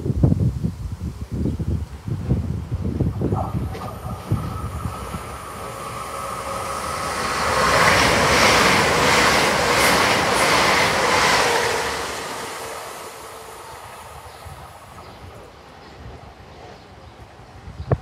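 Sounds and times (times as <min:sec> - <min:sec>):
train passing at speed: 0:02.0 - 0:18.0.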